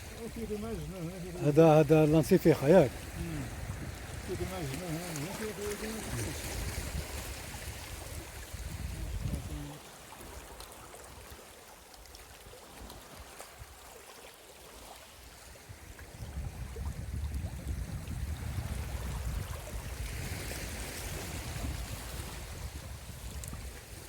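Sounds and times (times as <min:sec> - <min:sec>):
sea water washing among rocks: 0:00.0 - 0:24.0
wind on microphone: 0:02.8 - 0:04.8, 0:05.8 - 0:09.8, 0:15.7 - 0:24.0.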